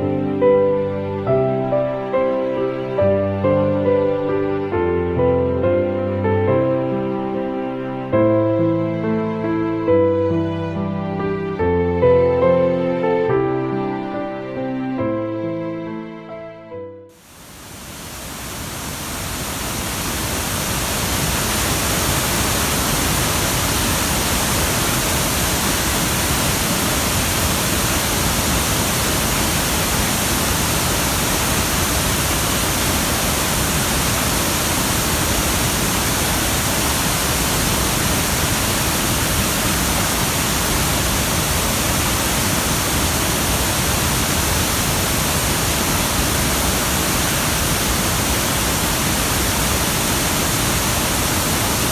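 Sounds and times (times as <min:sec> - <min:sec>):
waterfall rushing: 0:17.2 - 0:51.9.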